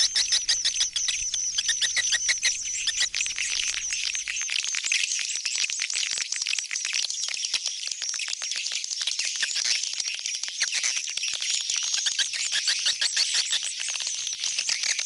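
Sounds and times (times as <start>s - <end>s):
swiftlets twittering: 0.0s - 4.4s.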